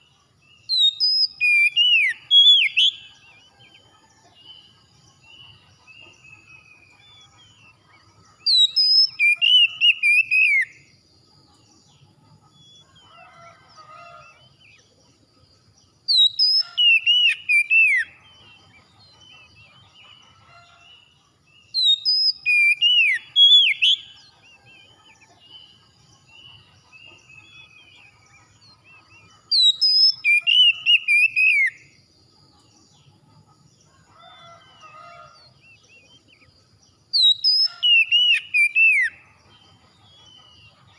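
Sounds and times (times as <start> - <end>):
bird whistled song: 0.0 - 3.8, 4.5 - 10.9, 16.1 - 20.8, 21.6 - 32.0, 37.1 - 40.9
faint bird chirping: 0.0 - 40.9.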